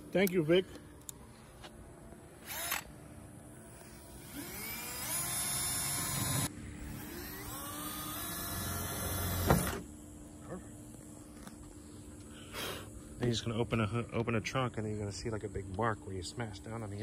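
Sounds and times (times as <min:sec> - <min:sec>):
cordless drill motor whining: 0:02.1 - 0:09.9.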